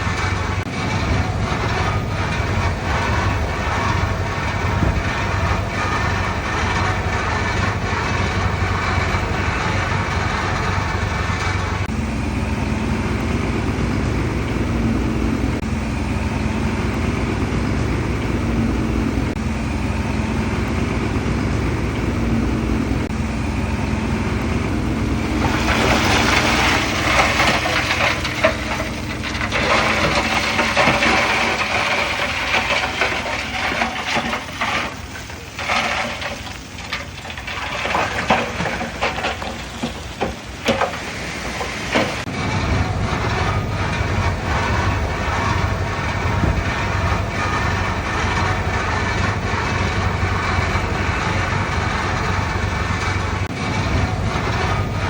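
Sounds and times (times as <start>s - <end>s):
steel tracks clattering and grinding: 0.0s - 12.3s, 24.5s - 55.0s
diesel engine running: 0.0s - 55.0s.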